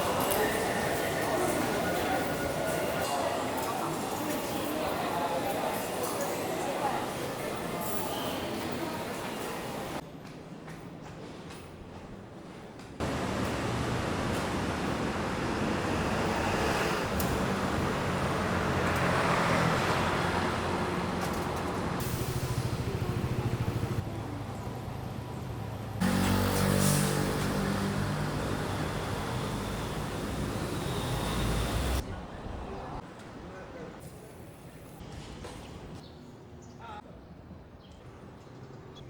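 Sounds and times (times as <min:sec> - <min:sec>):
vehicle running noise: 0:13.0 - 0:32.0.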